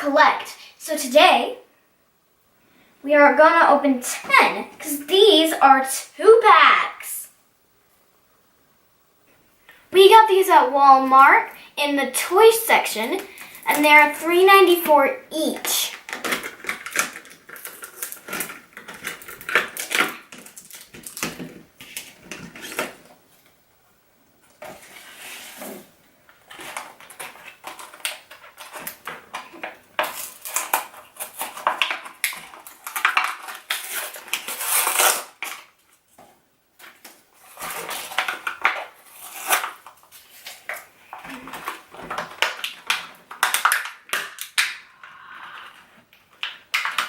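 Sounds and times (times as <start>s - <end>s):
toy packaging crinkling and tearing: 15.6s - 23.0s, 26.4s - 36.0s, 36.8s - 44.9s, 46.3s - 47.0s.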